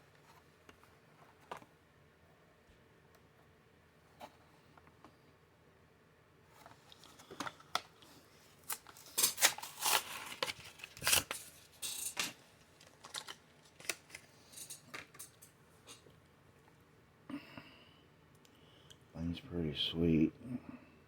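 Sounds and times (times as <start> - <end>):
plastic and cardboard ripping: 8.6 - 11.7.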